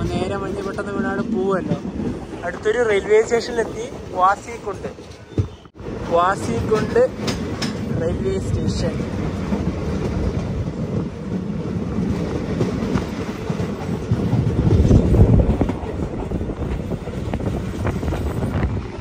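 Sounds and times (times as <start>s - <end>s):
train wheels rumbling on track: 0.0s - 19.0s
wind on microphone: 7.2s - 19.0s.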